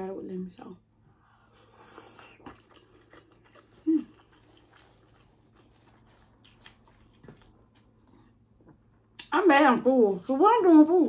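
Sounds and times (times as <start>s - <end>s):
chewing with wet clicks: 1.8s - 8.3s.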